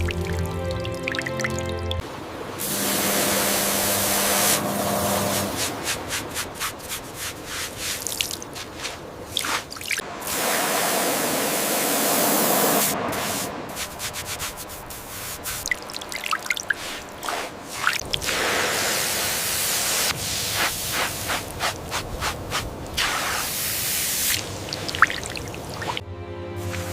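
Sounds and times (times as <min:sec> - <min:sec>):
water spraying and dripping: 0:00.0 - 0:26.0, 0:26.6 - 0:26.9
scraping and scrubbing strokes: 0:05.2 - 0:09.8, 0:13.1 - 0:15.8, 0:16.6 - 0:18.5.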